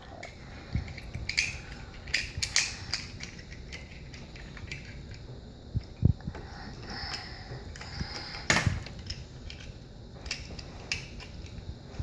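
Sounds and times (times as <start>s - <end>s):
plastic toy pieces clicking: 0.2s - 5.2s.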